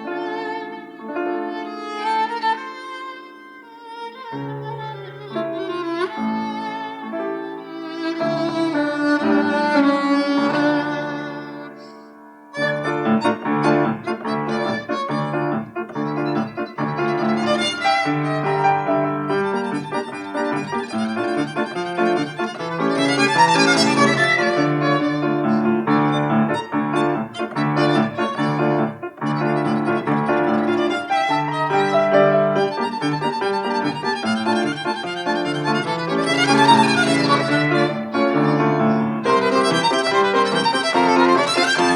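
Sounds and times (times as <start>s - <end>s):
piano accompaniment: 0.0s - 41.9s
violin playing: 0.0s - 41.9s.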